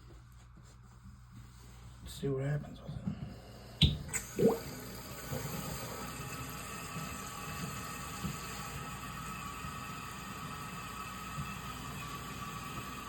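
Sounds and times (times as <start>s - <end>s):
water running into toilet tank: 3.8s - 13.0s.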